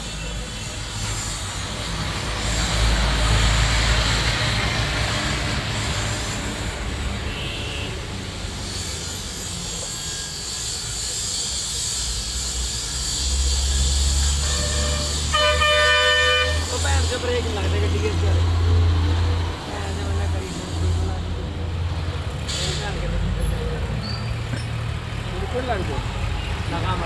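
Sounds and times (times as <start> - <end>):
road noise: 0.0 - 27.0
vehicle engine rumble: 13.1 - 27.0.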